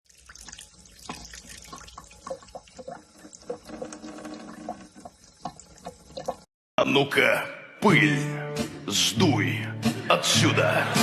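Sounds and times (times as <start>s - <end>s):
water running and splashing: 0.0s - 6.5s
water dripping: 0.1s - 6.5s.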